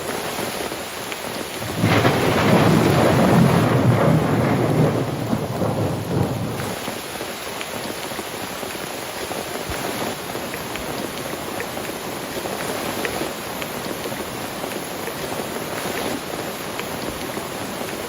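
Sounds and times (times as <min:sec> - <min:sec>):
heavy rain: 0:00.0 - 0:18.0
thunder rumbling: 0:01.6 - 0:06.9.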